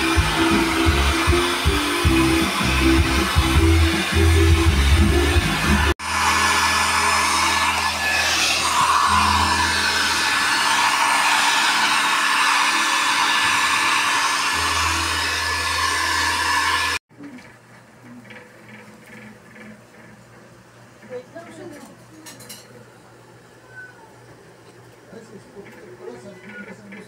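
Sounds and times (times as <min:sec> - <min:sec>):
electric hair dryer blowing: 0:00.0 - 0:17.0.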